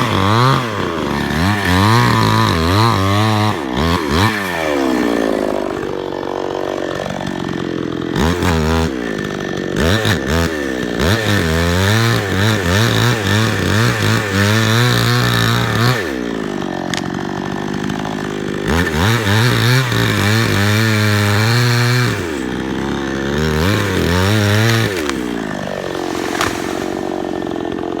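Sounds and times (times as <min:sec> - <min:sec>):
chainsaw engine revving: 0:00.0 - 0:28.0.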